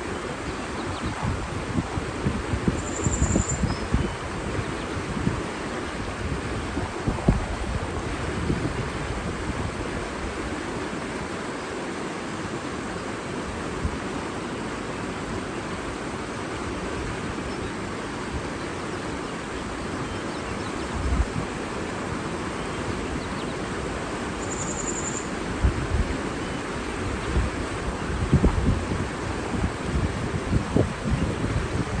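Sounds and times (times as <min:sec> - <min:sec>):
wind buffeting microphone: 0:00.0 - 0:11.3, 0:20.9 - 0:21.6, 0:25.4 - 0:32.0
water rushing: 0:00.0 - 0:32.0
high-pitched bird call: 0:02.8 - 0:03.9, 0:24.4 - 0:25.3.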